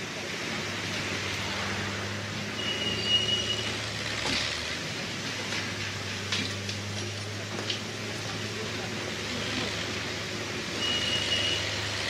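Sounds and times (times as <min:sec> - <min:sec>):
high beep: 0:02.6 - 0:03.7.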